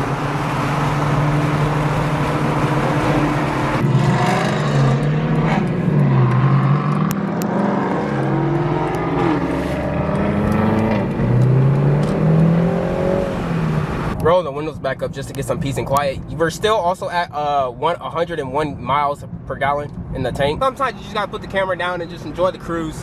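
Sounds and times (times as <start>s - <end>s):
car engines revving: 0.0s - 14.2s.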